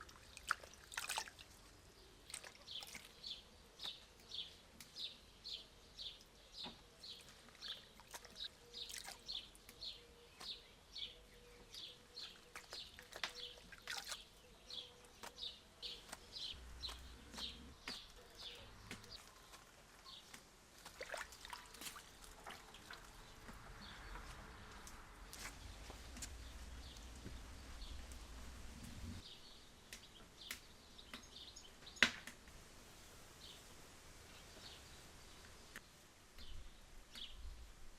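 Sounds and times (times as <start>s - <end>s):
bird chirping rhythmically: 2.8s - 19.3s.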